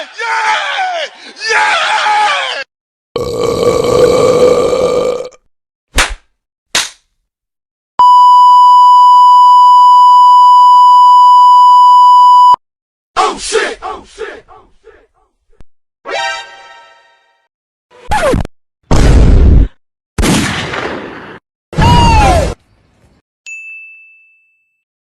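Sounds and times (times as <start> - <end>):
censor bleep: 8.0 - 12.6.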